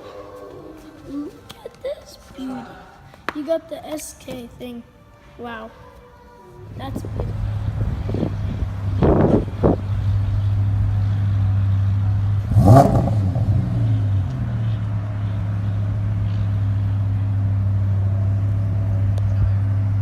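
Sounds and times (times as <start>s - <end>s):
car engine running: 7.0s - 20.0s.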